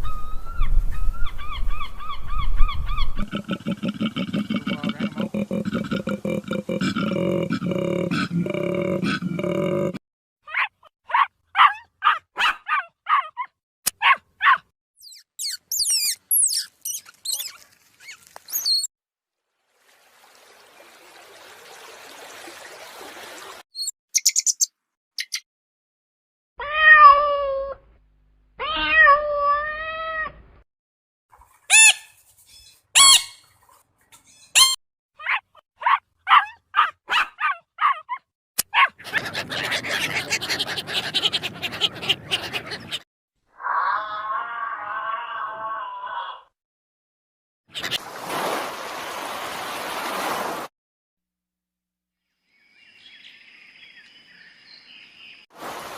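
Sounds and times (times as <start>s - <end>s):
very high chirps: 15.0s - 17.6s, 23.8s - 25.4s.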